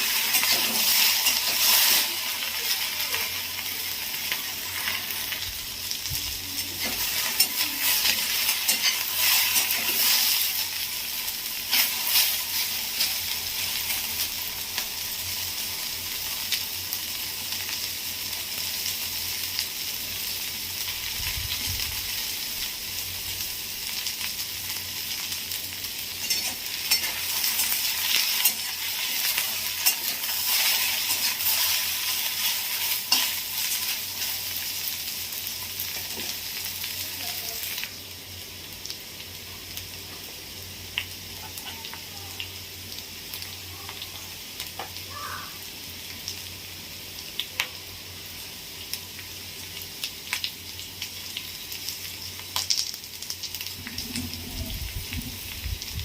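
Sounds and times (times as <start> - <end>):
okra sizzling in hot oil: 0.0 - 56.0.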